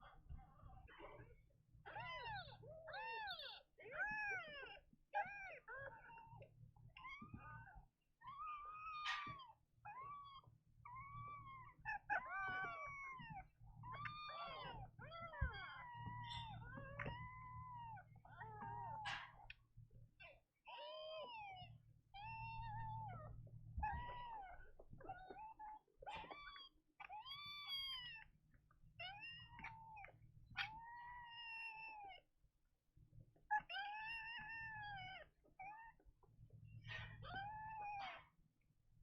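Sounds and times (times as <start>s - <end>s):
kittens mewing: 8.3s - 19.5s, 22.2s - 28.4s, 29.0s - 32.2s.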